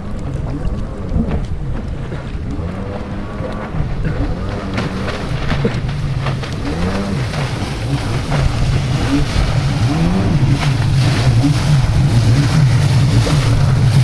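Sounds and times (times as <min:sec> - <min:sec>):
jet ski engine revving: 0:00.0 - 0:14.0
wind noise on microphone: 0:00.0 - 0:14.0.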